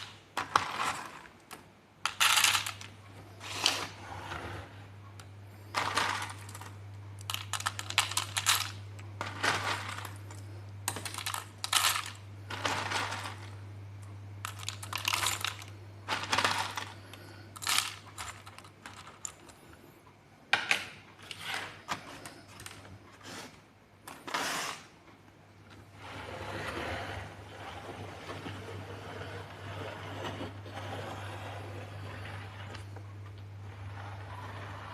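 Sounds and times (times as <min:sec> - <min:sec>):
plastic blocks clicking: 0:00.0 - 0:04.0, 0:05.7 - 0:13.6, 0:14.4 - 0:19.6.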